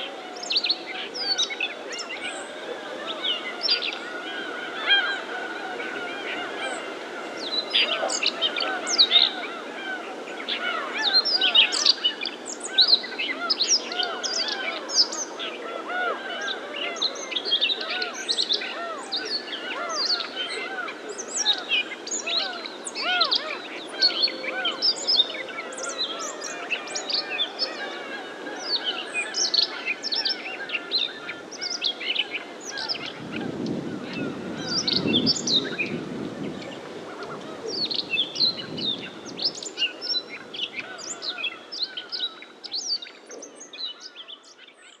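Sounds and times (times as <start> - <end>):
birds chirping: 0.0 - 45.0
birds honking: 25.6 - 42.6.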